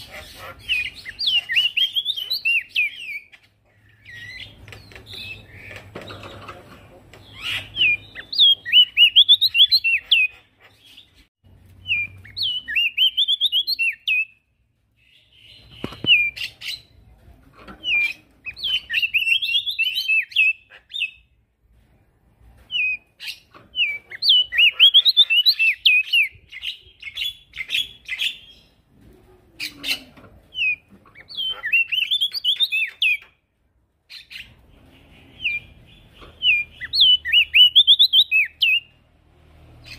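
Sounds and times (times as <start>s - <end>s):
bird singing chattering notes: 0.0s - 11.2s, 22.8s - 28.6s, 29.7s - 33.4s, 34.1s - 38.9s.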